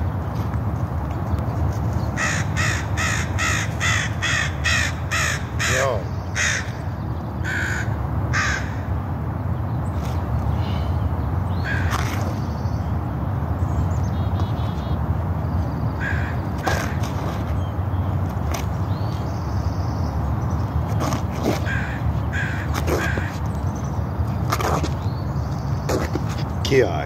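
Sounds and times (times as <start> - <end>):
bird calling: 2.1 - 9.0, 10.0 - 12.9, 15.6 - 18.2, 18.8 - 27.0.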